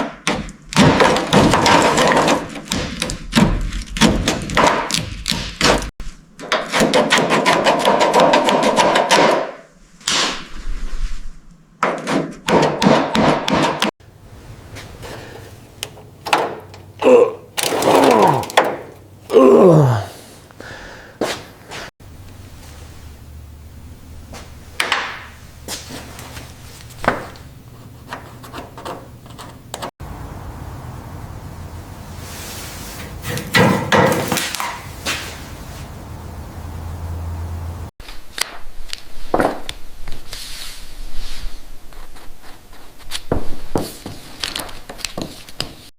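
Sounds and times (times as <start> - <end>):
tools knocking and clacking: 15.0 - 19.4
low steady hum: 22.0 - 24.8.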